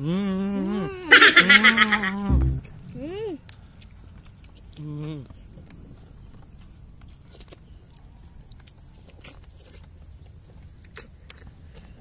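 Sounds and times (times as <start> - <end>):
low rumble: 2.3 - 2.7
chewing and lip smacking: 3.4 - 5.8, 6.5 - 12.0.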